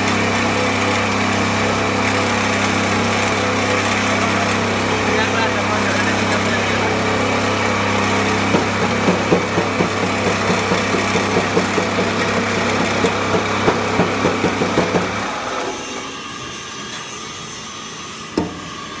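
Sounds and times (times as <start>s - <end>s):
coffee grinder humming: 0.0s - 16.2s
rapid knocks from mill: 6.3s - 15.6s.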